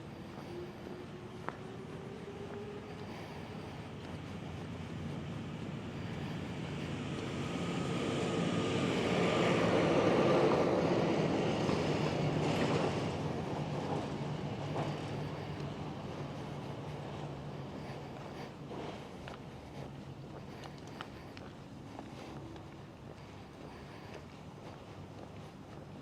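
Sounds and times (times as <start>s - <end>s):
vehicle passing by: 0.0s - 18.2s.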